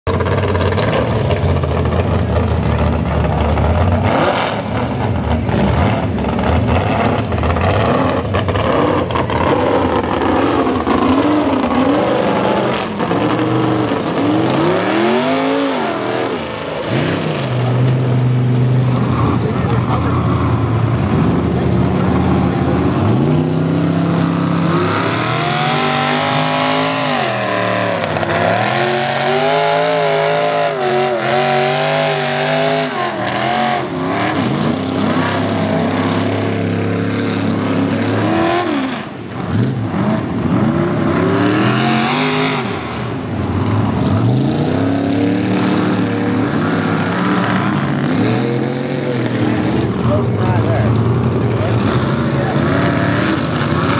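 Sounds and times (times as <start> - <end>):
truck engine revving hard: 0.1 - 53.9.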